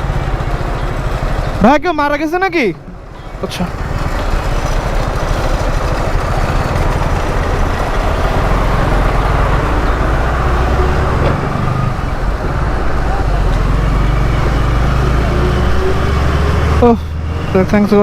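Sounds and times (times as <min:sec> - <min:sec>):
wind and road noise: 0:00.0 - 0:18.0
motorcycle engine running: 0:02.9 - 0:10.2.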